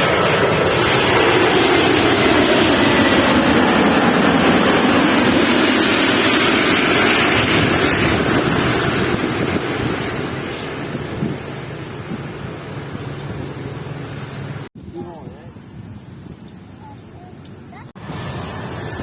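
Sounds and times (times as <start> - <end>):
jet airliner passing overhead: 0.0 - 15.5, 16.1 - 19.0.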